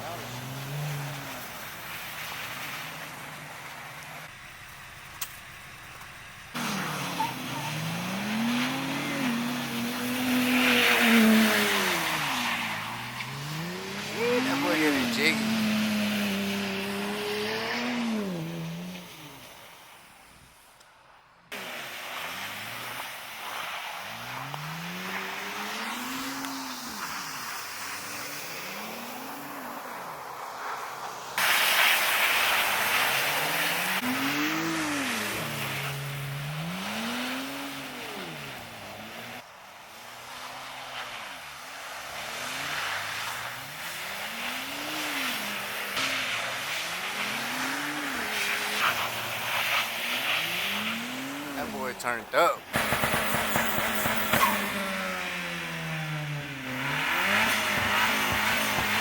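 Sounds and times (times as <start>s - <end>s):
car engine revving: 0.0s - 20.1s, 21.5s - 59.0s.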